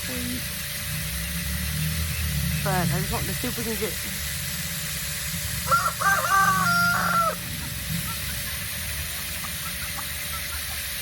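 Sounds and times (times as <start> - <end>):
rooster crowing: 5.6 - 7.5.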